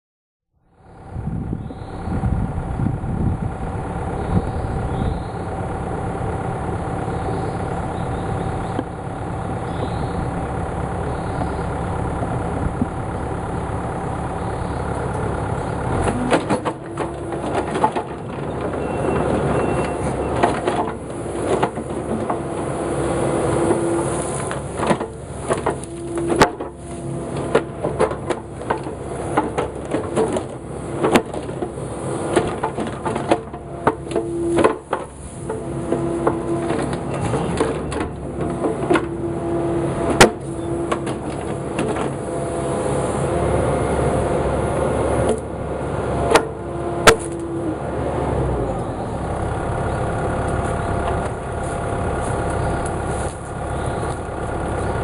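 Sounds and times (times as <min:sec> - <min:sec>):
heavy machine engine running: 0:00.6 - 0:55.0
knocks and clattering: 0:15.9 - 0:22.8, 0:23.5 - 0:39.2, 0:40.0 - 0:42.2.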